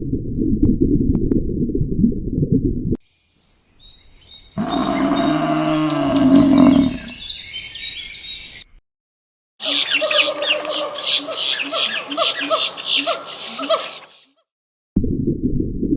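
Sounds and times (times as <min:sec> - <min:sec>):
birds chirping: 0:03.5 - 0:08.8, 0:09.6 - 0:14.3
long low animal call: 0:04.6 - 0:07.2
high rapid chattering calls: 0:09.6 - 0:14.3.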